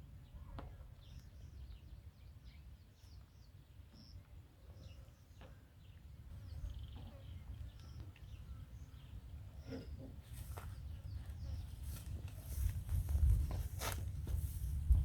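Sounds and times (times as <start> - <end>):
small birds chirping: 0.2 - 13.8.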